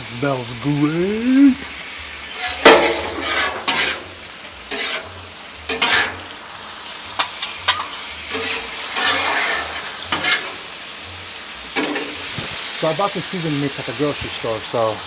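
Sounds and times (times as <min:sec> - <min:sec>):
food sizzling on a griddle: 0:00.0 - 0:15.0
spatula scraping on steel: 0:02.4 - 0:06.4, 0:07.2 - 0:10.7.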